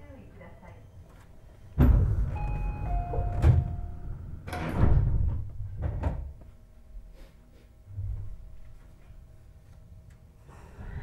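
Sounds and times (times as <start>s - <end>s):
door chime tones: 2.3s - 4.8s.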